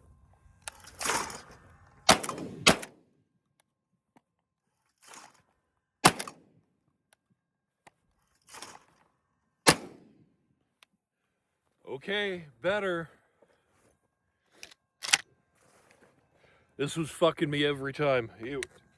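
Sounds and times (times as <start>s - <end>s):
shotgun shots: 2.1s - 3.0s, 6.0s - 6.4s, 9.6s - 10.2s.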